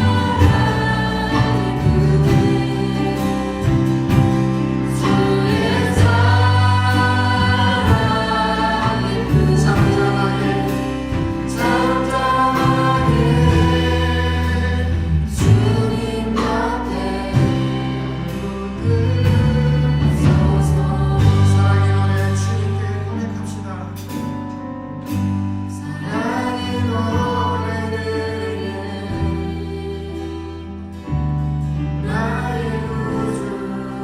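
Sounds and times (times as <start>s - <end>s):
drum hits: 0.0s - 22.2s
group singing worship song: 0.0s - 23.9s, 25.6s - 34.0s
bass and keyboard notes: 0.0s - 34.0s.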